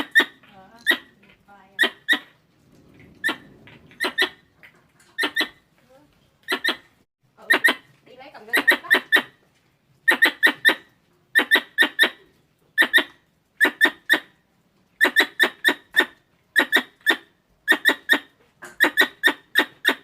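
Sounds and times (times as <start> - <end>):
squirrel chirping: 0.0 - 1.2, 1.8 - 2.4, 3.2 - 4.4, 5.2 - 5.6, 6.4 - 9.4, 10.0 - 12.2, 12.8 - 14.3, 15.0 - 20.0.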